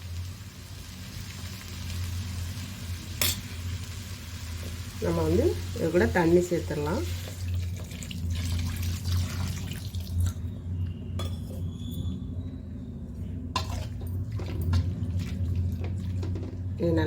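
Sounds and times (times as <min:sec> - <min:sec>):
utensils clinking against pan: 0:03.2 - 0:03.5, 0:11.2 - 0:11.7
water poured into a pan: 0:07.2 - 0:10.4
steady low hum: 0:09.9 - 0:17.0.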